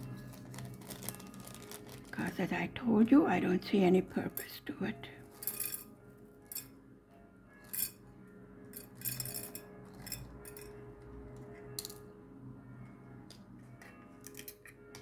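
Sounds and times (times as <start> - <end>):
plastic crystals clinking: 0.0 - 2.4.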